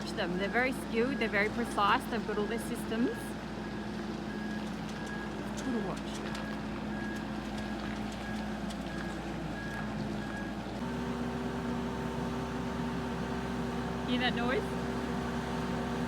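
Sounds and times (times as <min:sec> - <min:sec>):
travel lift machine hum: 0:10.8 - 0:16.0
warning beeper: 0:10.8 - 0:16.0.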